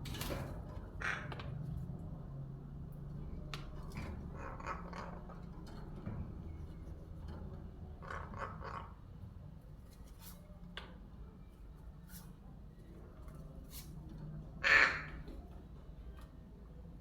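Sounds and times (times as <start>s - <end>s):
young crow harsh call: 14.6s - 15.2s.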